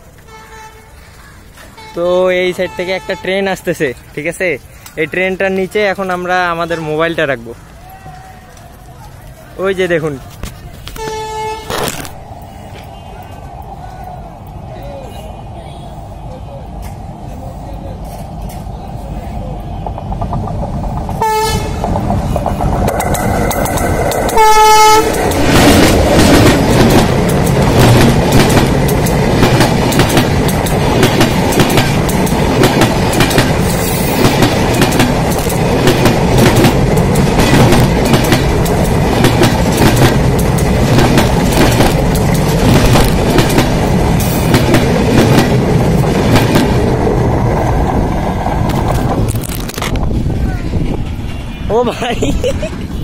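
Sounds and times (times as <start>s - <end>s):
train rolling overhead rumble: 0.0s - 53.0s
train horn blast: 0.2s - 1.0s, 11.0s - 11.8s, 21.2s - 21.8s, 24.4s - 25.2s
wheel clacks over rail joints: 19.8s - 46.8s.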